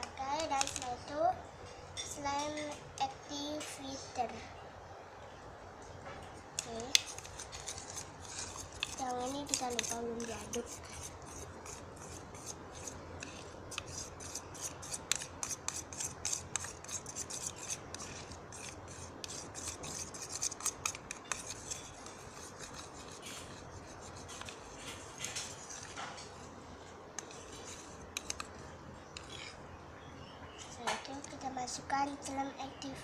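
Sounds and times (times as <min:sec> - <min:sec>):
spoon stirring glue mixture: 0:06.3 - 0:29.7.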